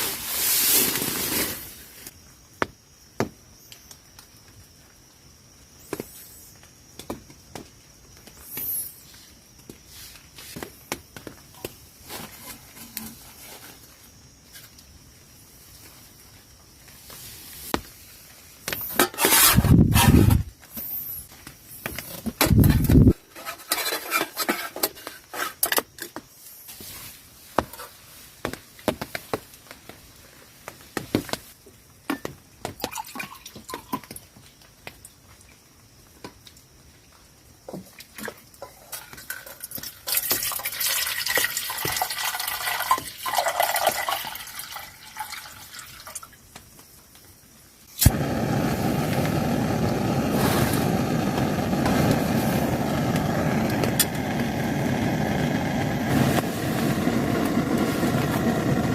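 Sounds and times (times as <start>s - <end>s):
liquid pouring: 32.9s - 34.1s, 39.4s - 46.3s.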